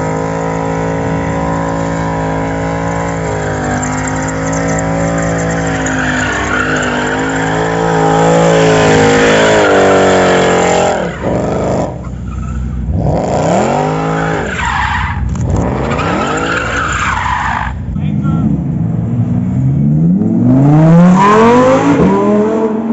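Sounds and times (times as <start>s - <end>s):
car engine revving hard: 0.0s - 12.0s, 12.8s - 17.1s, 18.5s - 22.9s
tyres squealing: 1.2s - 12.8s, 13.9s - 17.8s.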